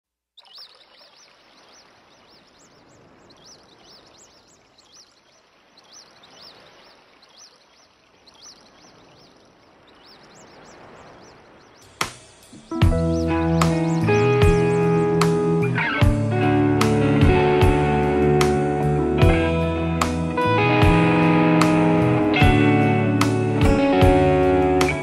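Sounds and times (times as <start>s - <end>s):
birds chirping: 0.4s - 25.0s
steady background hiss: 1.4s - 15.8s.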